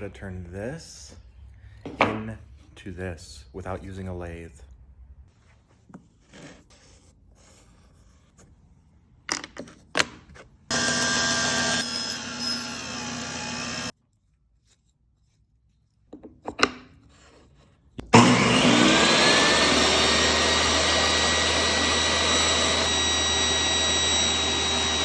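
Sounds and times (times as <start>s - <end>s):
power tool running: 10.7s - 13.9s, 18.1s - 25.0s.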